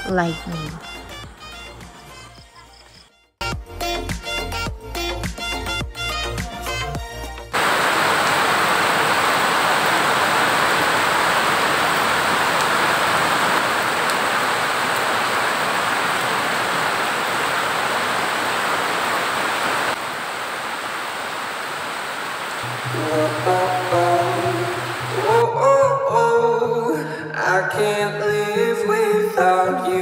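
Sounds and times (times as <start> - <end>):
heavy rain falling: 7.6 - 25.4.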